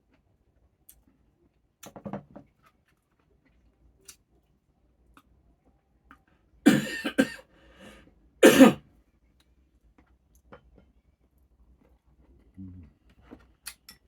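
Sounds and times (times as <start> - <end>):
person coughing: 6.7 - 7.4, 8.4 - 8.8.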